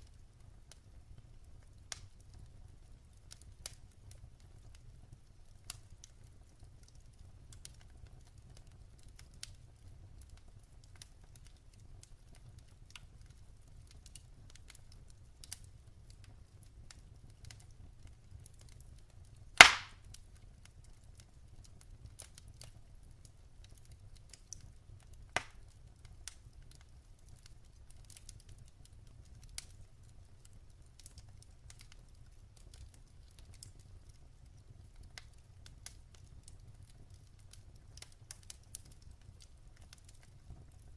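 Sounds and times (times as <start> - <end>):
low steady rumble of fire: 0.0 - 40.9
wood fire crackling: 0.0 - 40.9
loud sharp pop: 19.6 - 20.0, 25.4 - 25.6.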